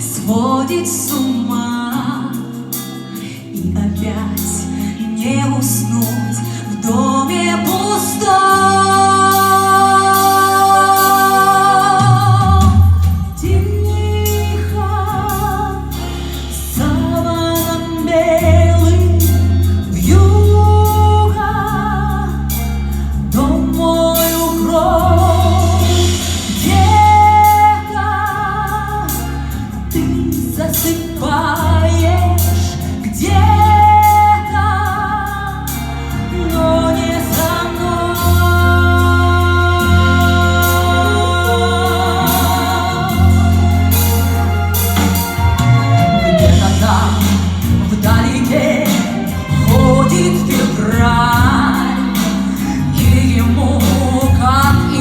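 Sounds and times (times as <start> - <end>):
instrumental backing with bass: 0.0 - 55.0
woman singing with vibrato: 0.0 - 55.0.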